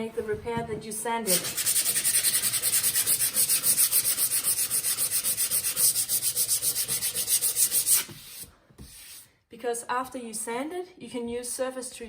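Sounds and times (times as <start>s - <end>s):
sandpaper rubbing on wood: 1.3s - 9.2s.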